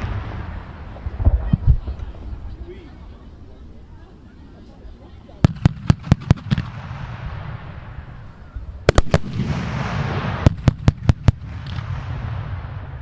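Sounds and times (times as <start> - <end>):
distant firework bangs: 0.0 - 2.0, 5.4 - 13.0.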